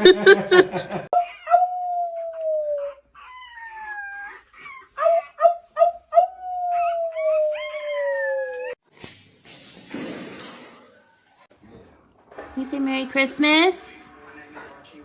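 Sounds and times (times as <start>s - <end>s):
dog howling: 1.2s - 8.8s
dog yipping: 1.2s - 8.8s.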